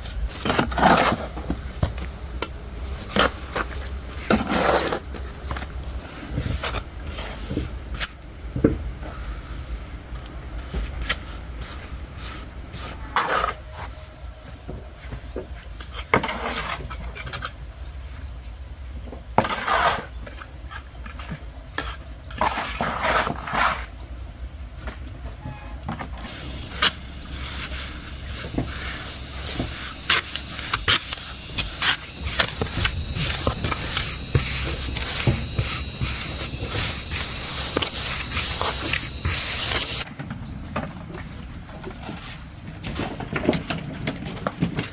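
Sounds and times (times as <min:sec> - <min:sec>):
scraping strokes: 0:26.3 - 0:40.0.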